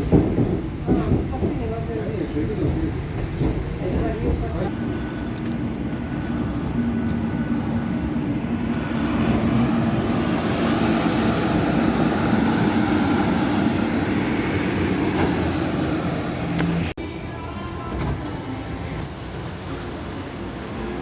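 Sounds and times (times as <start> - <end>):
train running rumble: 0.0 - 19.4
low engine hum: 3.4 - 19.2.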